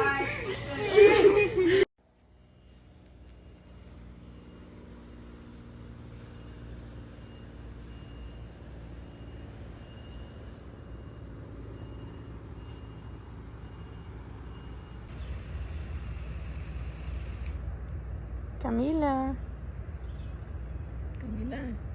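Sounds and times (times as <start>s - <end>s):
heavy vehicle engine rumbling: 0.0s - 21.9s
reversing alarm beeping: 2.5s - 17.3s.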